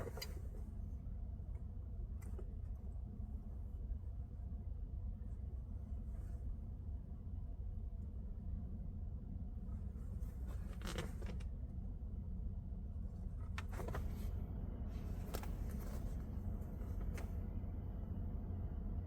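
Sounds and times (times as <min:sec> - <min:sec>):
faint rustles or creaks: 0:00.0 - 0:04.0, 0:09.7 - 0:11.7, 0:13.1 - 0:14.4, 0:15.0 - 0:17.4
steady low hum: 0:00.0 - 0:19.0.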